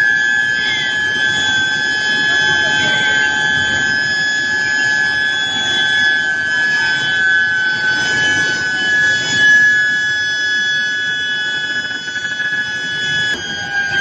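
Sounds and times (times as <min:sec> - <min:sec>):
high-pitched furnace whine: 0:00.0 - 0:14.0
machinery noise: 0:00.0 - 0:14.0.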